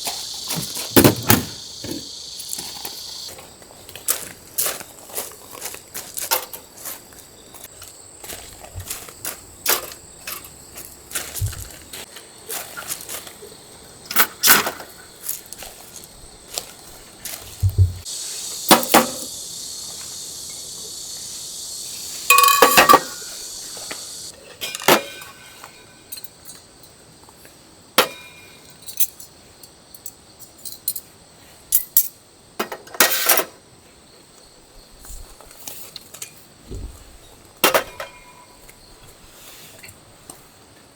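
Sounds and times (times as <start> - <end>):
steady hiss: 0.0 - 26.3
metal clinks and clanks: 22.3 - 23.3.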